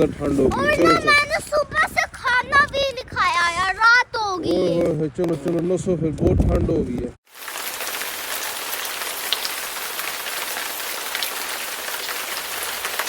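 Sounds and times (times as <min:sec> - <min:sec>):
hiss of rain falling: 0:07.3 - 0:13.0.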